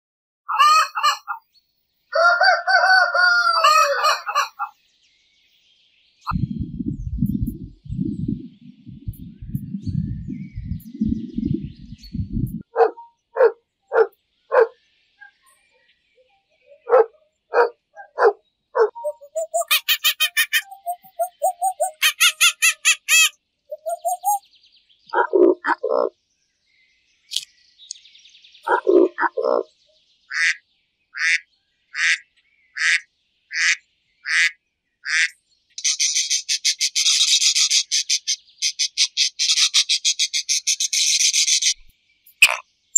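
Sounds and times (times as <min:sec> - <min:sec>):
rooster crowing: 0:02.1 - 0:04.7
monkey squeaky calls: 0:18.8 - 0:24.4, 0:42.4 - 0:42.6
monkey low croaking calls: 0:28.7 - 0:29.7.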